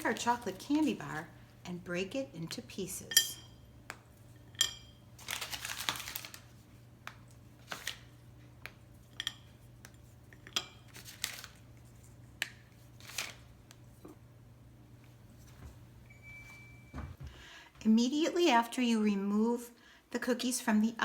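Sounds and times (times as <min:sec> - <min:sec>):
chocolate bar crackling: 0:00.0 - 0:02.9, 0:03.8 - 0:14.1.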